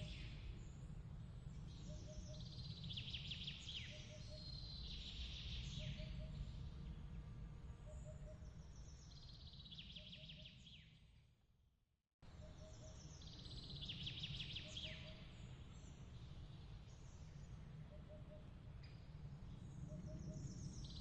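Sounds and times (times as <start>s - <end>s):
low steady rumble: 0.0s - 9.7s.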